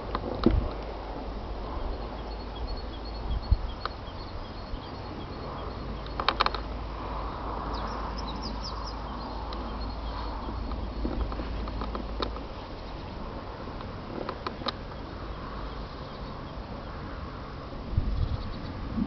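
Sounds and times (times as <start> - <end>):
steady low rumble: 0.0 - 19.0
small birds chirping: 1.6 - 18.9
sharp clicks: 6.0 - 6.7.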